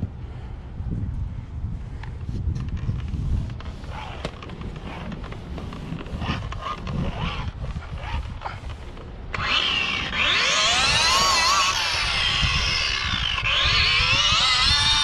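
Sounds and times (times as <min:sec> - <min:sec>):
buffer motor whining: 0:04.0 - 0:15.0.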